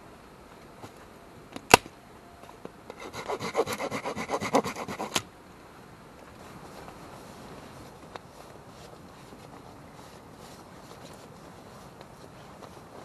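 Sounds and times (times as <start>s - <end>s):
hand saw cutting wood: 2.9s - 5.2s.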